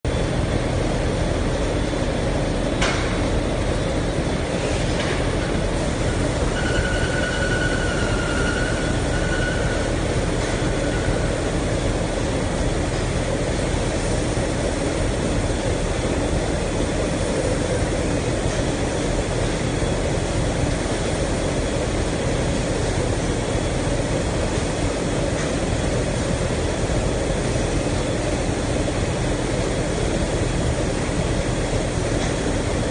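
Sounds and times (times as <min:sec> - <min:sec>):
washing machine mechanical noise: 0:00.1 - 0:32.9
thin high squeal: 0:06.5 - 0:09.9.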